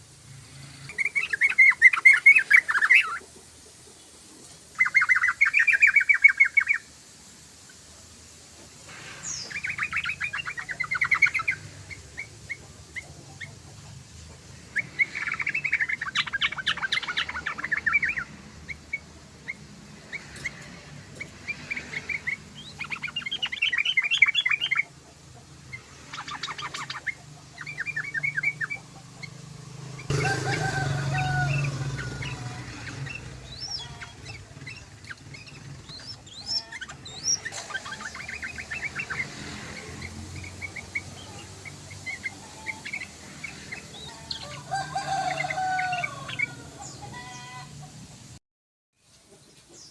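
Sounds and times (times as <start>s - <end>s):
bulbul chattering song: 0.0s - 48.4s
rushing noise: 29.3s - 46.8s.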